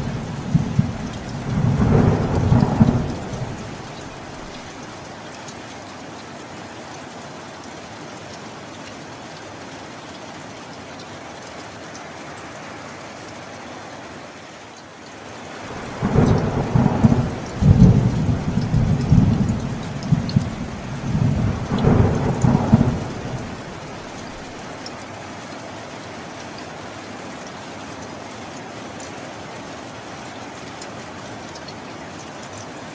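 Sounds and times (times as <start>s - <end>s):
rolling thunder: 0.0s - 4.7s, 15.7s - 24.6s
steady rain: 0.0s - 32.9s.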